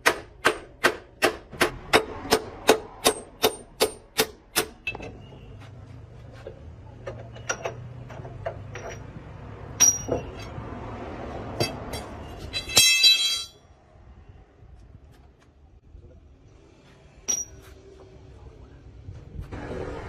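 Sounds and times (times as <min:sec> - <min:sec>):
metal tapping and clinking: 0:07.0 - 0:10.6, 0:17.2 - 0:17.7.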